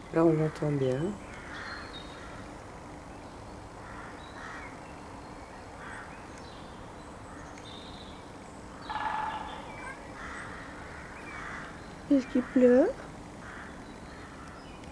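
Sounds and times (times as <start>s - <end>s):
bird calling: 0.8s - 2.5s, 5.5s - 14.9s.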